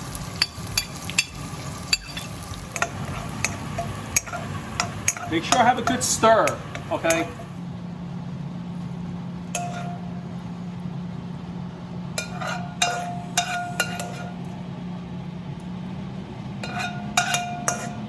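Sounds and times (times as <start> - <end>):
steady low hum: 0.0 - 18.0
metal utensil clinking on pan: 0.3 - 7.4, 9.6 - 10.0, 12.2 - 14.4, 16.6 - 18.0.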